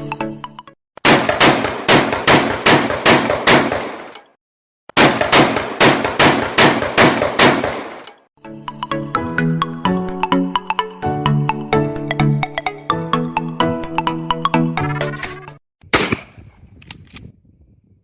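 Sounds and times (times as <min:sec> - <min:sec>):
shotgun shots: 0:01.0 - 0:08.2, 0:15.9 - 0:16.4.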